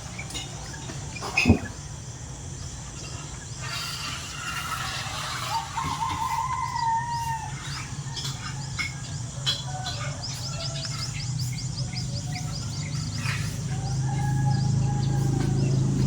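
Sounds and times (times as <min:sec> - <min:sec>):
birds chirping and calling: 0:00.0 - 0:16.0
steady low hum: 0:07.4 - 0:16.0.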